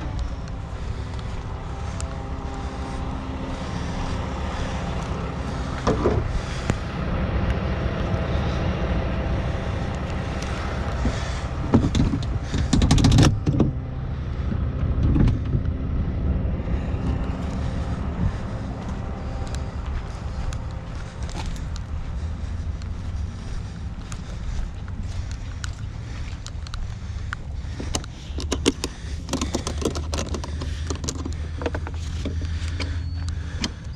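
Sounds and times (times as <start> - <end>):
truck diesel engine idling: 0.0 - 33.9.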